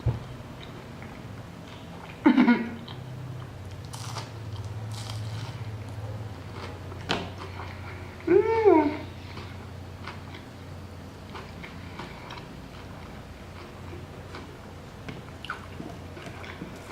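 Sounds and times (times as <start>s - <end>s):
steady low hum: 0.0s - 16.9s
person chewing food: 2.8s - 8.3s, 9.1s - 16.9s.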